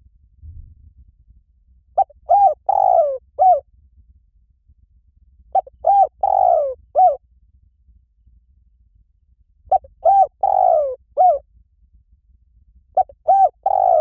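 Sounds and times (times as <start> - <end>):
dove cooing: 2.0 - 3.6, 5.6 - 7.2, 9.7 - 11.4, 13.0 - 14.0.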